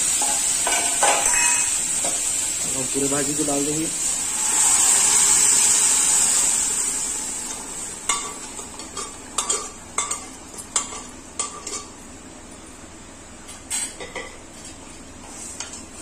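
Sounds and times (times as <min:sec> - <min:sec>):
food sizzling in hot oil: 0:00.0 - 0:12.8.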